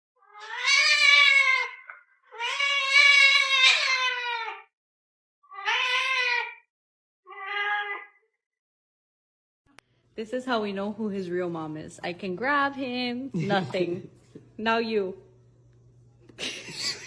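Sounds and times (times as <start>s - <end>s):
dog howling: 0.2s - 4.7s.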